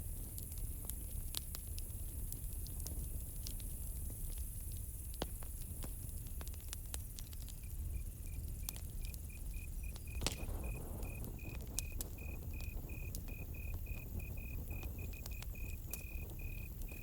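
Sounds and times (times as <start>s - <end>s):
campfire crackling and popping: 0.0s - 17.0s
cricket chirping: 7.4s - 17.0s.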